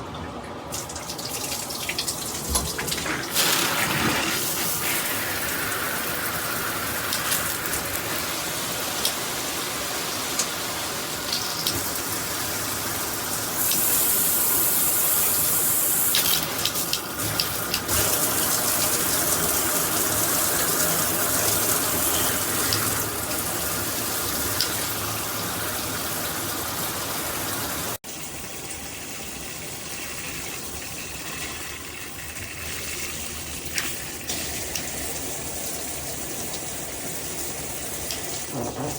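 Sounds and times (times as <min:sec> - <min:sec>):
shower water spraying: 0:00.8 - 0:28.0.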